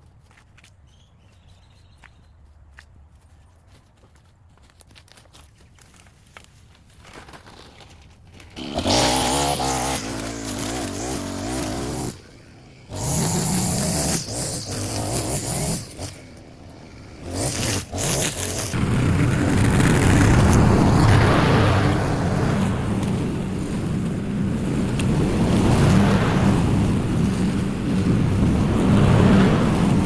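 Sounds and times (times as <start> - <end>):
small gas engine revving: 8.3 - 30.0.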